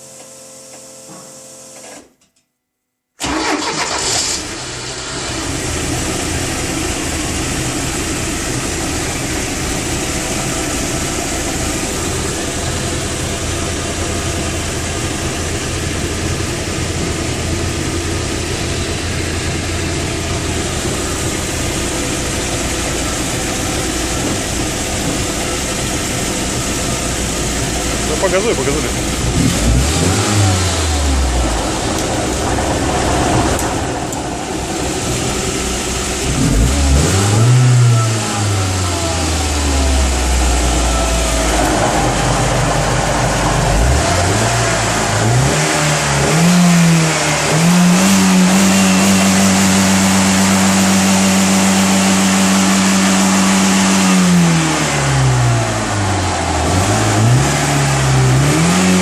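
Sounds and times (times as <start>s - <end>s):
motorboat engine revving: 28.0s - 35.1s, 36.2s - 59.0s.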